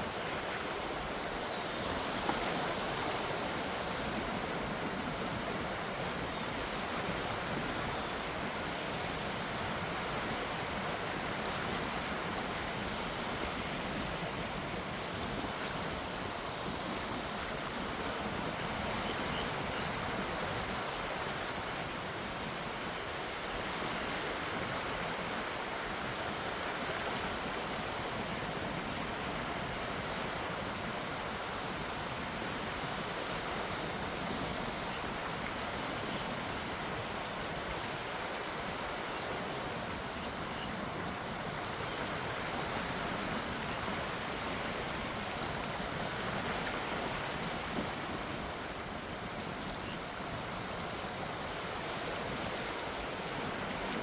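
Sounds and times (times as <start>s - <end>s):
gentle sea waves: 0.0s - 54.0s.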